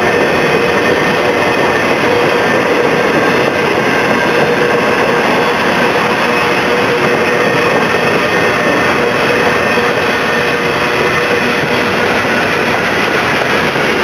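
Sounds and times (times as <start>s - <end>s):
train wheels rattling on rail: 0.0s - 14.0s.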